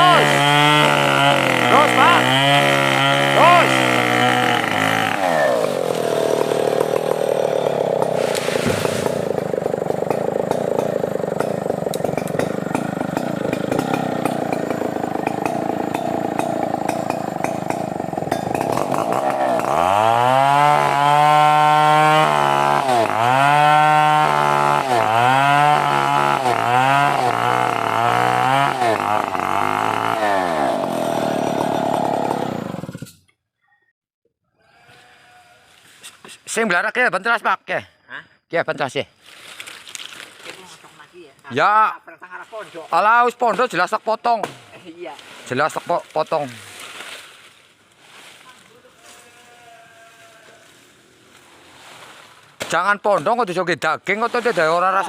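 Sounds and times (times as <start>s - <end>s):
chainsaw running under load: 0.0s - 33.2s, 54.4s - 55.0s.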